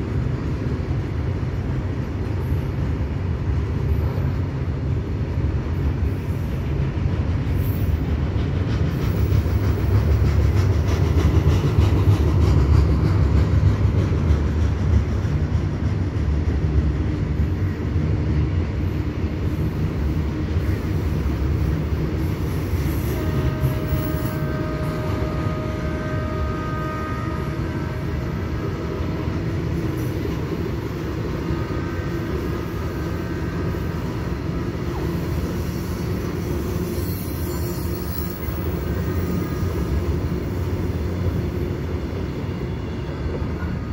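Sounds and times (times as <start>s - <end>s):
freight wagons rumbling on rails: 0.0s - 43.9s
high wheel squeal: 35.4s - 39.9s.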